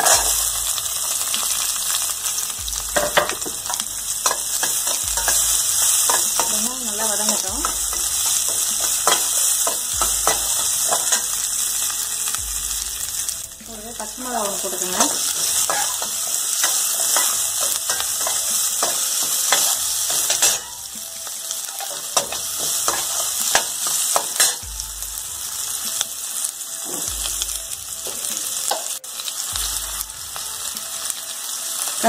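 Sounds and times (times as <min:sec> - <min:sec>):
metal ladle scraping a pan: 0:00.0 - 0:00.5, 0:03.0 - 0:12.0, 0:14.2 - 0:24.6
shallots sizzling in hot oil: 0:00.0 - 0:32.0.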